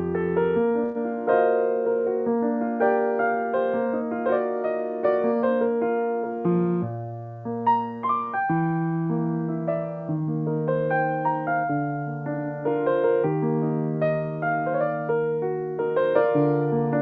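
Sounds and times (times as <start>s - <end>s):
solo piano melody: 0.0s - 17.0s.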